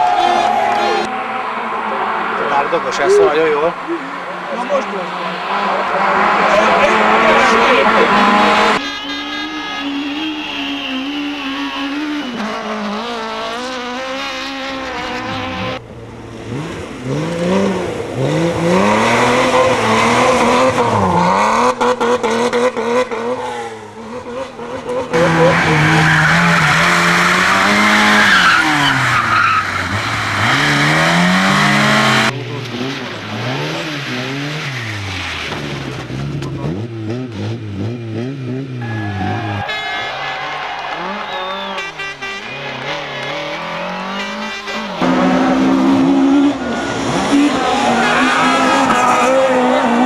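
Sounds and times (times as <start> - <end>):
rally car engines revving: 0.0 - 50.0
tyres skidding: 0.0 - 50.0.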